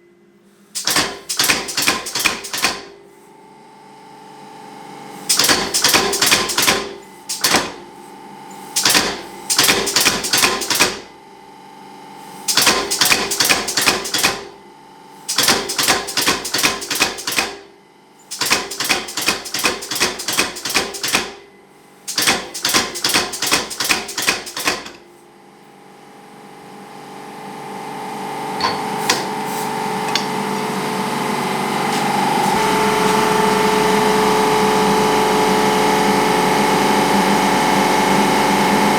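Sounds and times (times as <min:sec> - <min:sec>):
hammer striking steel on anvil: 0:18.4 - 0:21.4, 0:28.6 - 0:29.4, 0:30.1 - 0:30.4.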